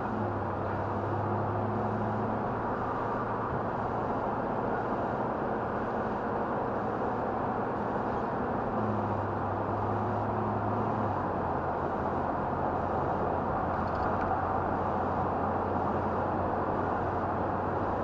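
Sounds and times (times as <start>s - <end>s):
low engine hum: 0.0s - 18.0s
road and wind noise: 0.0s - 18.0s.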